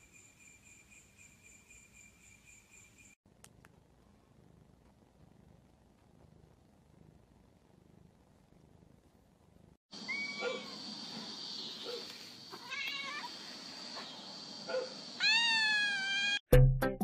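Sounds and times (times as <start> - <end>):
cat meowing: 12.5 - 13.3, 15.2 - 16.4.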